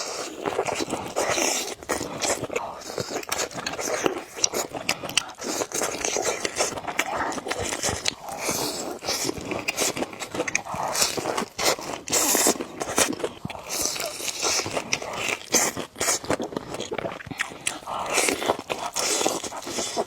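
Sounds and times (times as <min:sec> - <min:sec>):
person chewing noodles: 0:00.0 - 0:20.0.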